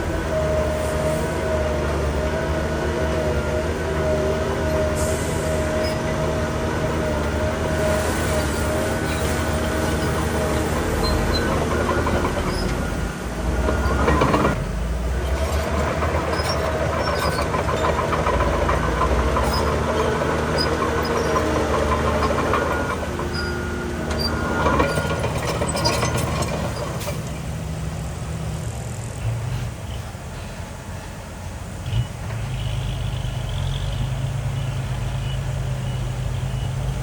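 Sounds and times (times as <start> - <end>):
diesel engine running under load: 0.0 - 37.0
metallic clanking: 15.2 - 27.5.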